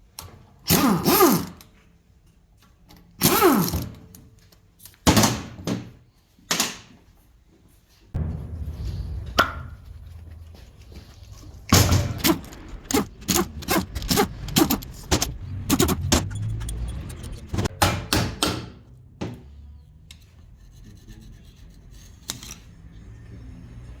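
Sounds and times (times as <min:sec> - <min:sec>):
low steady rumble: 0:08.2 - 0:17.8.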